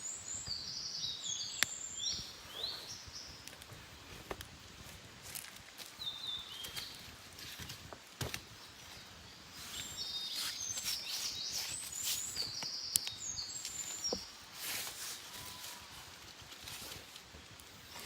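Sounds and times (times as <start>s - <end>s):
birds singing: 0.0s - 4.3s, 6.0s - 7.2s, 8.5s - 14.6s.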